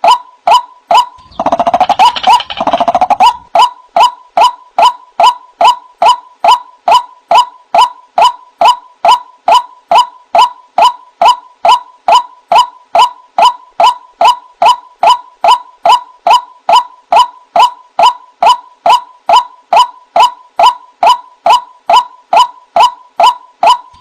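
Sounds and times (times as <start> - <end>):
waterhen kwak call: 0.0 - 16.9.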